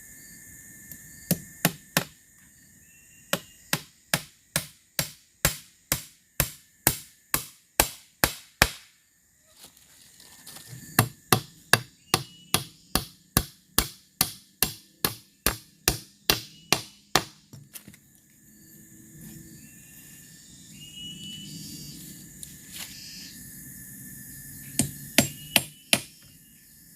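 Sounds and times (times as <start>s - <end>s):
hand tool striking bamboo: 3.3s - 8.9s, 11.0s - 18.0s.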